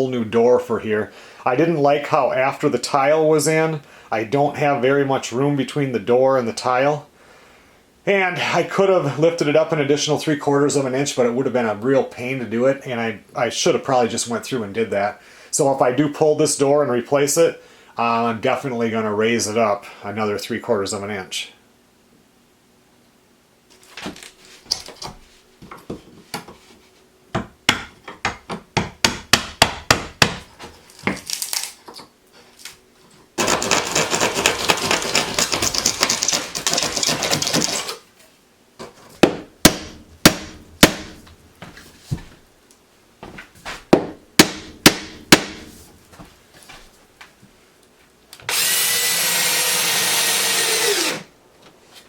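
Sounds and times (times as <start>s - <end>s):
power driver buzzing and rattling: 33.4s - 38.0s, 48.5s - 51.3s
drill whirring: 48.5s - 51.3s.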